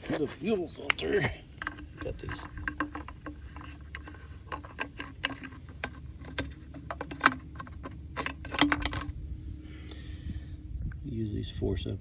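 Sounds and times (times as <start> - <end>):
metal forceps clicking and tapping: 0.8 - 9.1.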